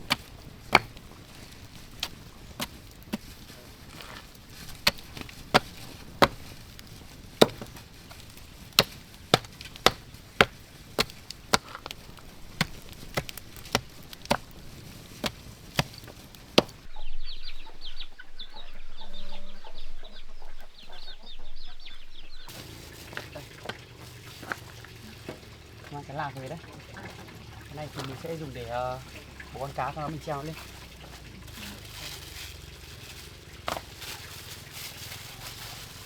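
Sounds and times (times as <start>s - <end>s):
blade chopping wood: 0.0s - 16.9s
chickens clucking: 16.9s - 26.0s.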